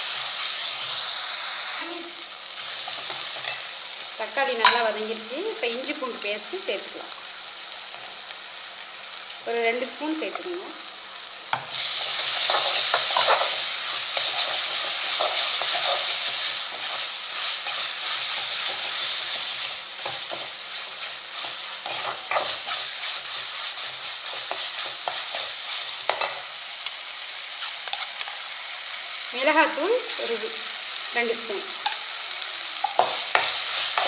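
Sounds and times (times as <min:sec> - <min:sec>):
food sizzling in a pan: 0:00.0 - 0:34.0
spoon scraping a pan: 0:02.6 - 0:03.8, 0:11.5 - 0:26.5, 0:27.5 - 0:28.8, 0:30.0 - 0:30.5, 0:31.8 - 0:32.1, 0:32.8 - 0:34.0.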